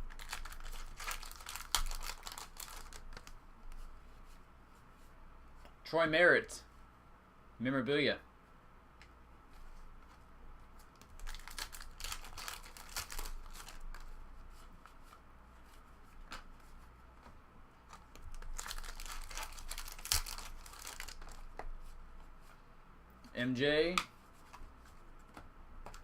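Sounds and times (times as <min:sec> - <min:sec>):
card pack wrappers tearing and crinkling: 0:00.0 - 0:03.3, 0:11.0 - 0:14.0, 0:18.1 - 0:21.6.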